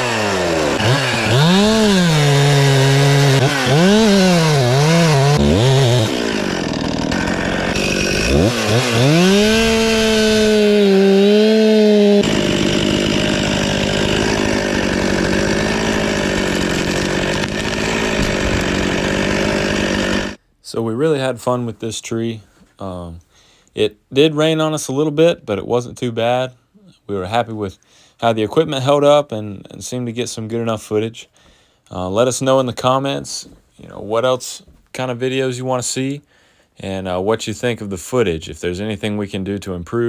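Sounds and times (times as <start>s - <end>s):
chainsaw revving: 0.0s - 20.4s.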